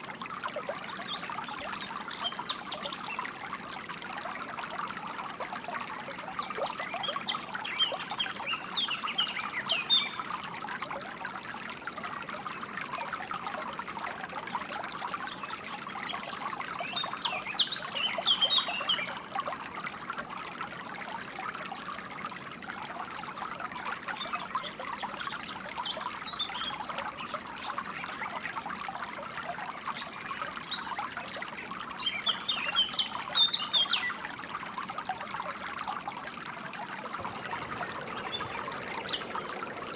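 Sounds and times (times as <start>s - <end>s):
stream trickling: 0.0s - 39.9s
small birds chirping: 37.1s - 39.9s.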